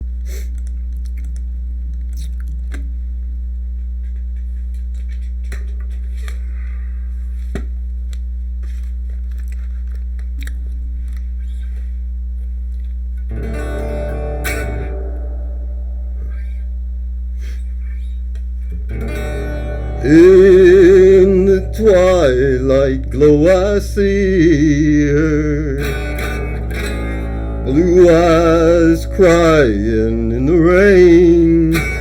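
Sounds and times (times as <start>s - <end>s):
low hum: 0.0s - 32.0s
guitar picked notes: 13.3s - 16.7s, 18.0s - 32.0s.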